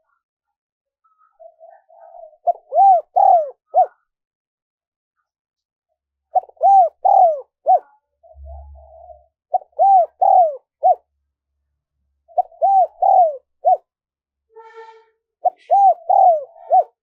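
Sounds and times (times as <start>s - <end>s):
dove cooing: 1.4s - 4.0s, 6.3s - 11.1s, 12.3s - 13.8s, 15.4s - 17.0s.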